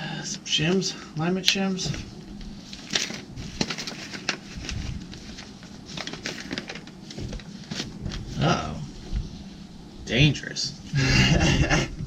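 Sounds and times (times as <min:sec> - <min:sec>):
papers rustling: 0:01.8 - 0:09.3.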